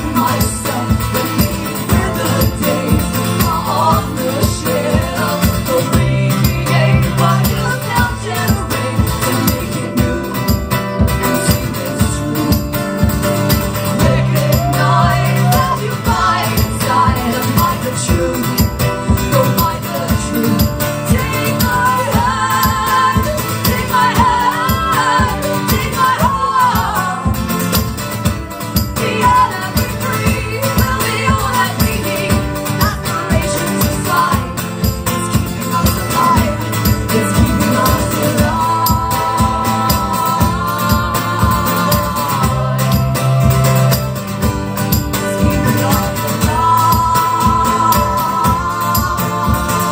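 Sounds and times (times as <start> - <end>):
person singing without words: 0.0 - 12.9, 13.5 - 27.8, 28.5 - 44.1, 45.2 - 49.9
strummed guitars: 0.0 - 49.9.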